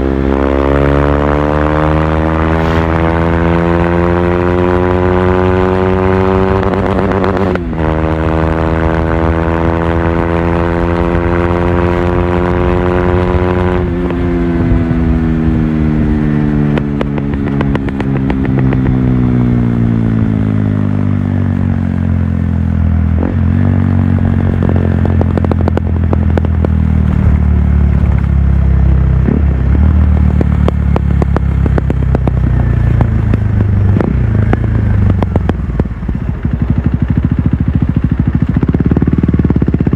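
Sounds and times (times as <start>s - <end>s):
motorcycle engine running: 0.0s - 39.9s
engine popping: 24.2s - 39.9s.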